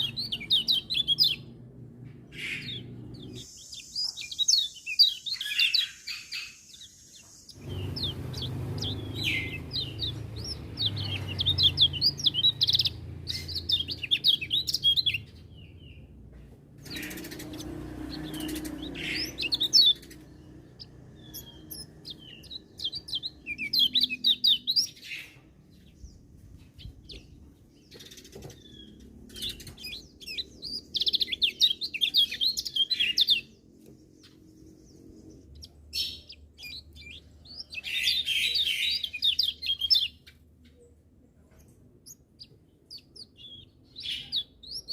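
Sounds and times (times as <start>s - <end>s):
bird twittering: 0.0s - 1.5s, 2.3s - 16.0s, 16.8s - 25.4s, 27.0s - 33.6s
bird calls: 0.0s - 1.6s, 2.3s - 16.1s, 16.8s - 26.2s, 26.8s - 41.0s.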